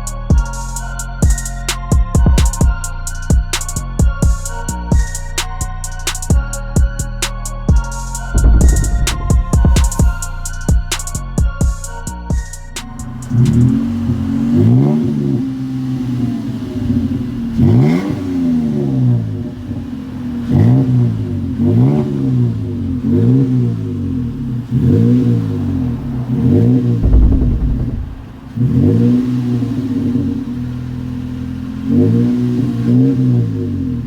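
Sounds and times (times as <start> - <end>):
truck engine revving: 8.3 - 19.5, 20.2 - 34.0.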